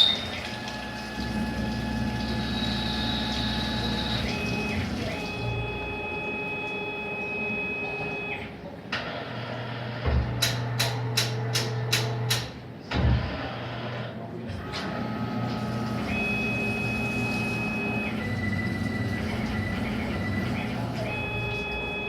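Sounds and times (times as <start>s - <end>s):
lathe motor hum and whine: 0.0s - 8.1s, 14.8s - 22.0s.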